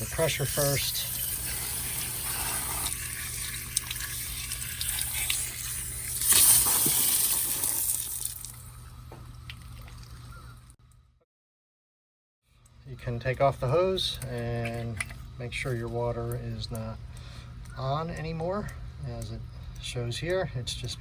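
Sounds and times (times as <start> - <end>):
water spraying from hose tap: 0.0 - 8.7.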